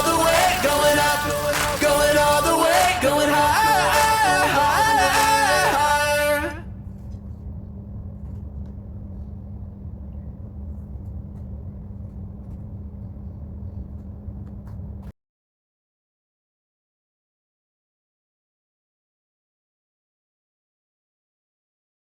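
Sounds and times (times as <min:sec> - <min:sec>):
low hum and rumble: 0:00.0 - 0:15.2.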